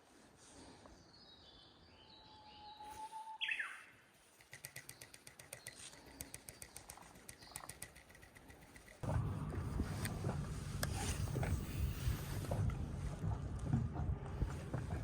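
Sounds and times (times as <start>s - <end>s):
bird chirp: 1.0s - 8.0s
sharp ticks: 4.3s - 9.0s.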